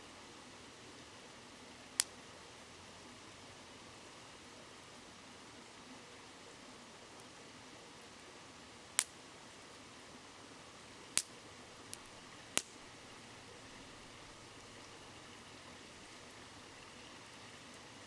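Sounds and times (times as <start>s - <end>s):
river flowing: 10.0s - 18.0s
wood fire crackling: 10.9s - 17.3s.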